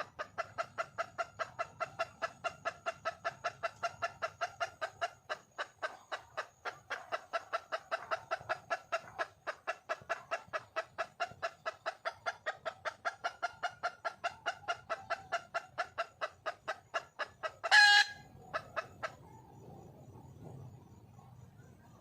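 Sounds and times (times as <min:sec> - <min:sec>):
hen clucking rapidly: 0:00.0 - 0:22.0
hen squawk: 0:17.6 - 0:18.2.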